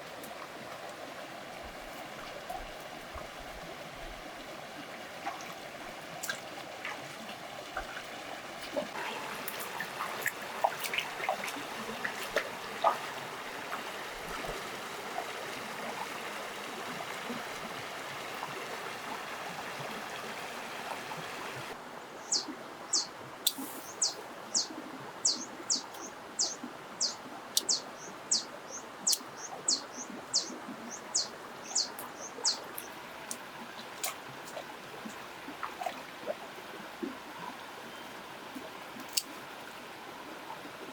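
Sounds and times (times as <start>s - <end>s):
water trickling and splashing: 0.0s - 40.9s
bird chirping: 22.2s - 23.1s, 23.8s - 32.6s.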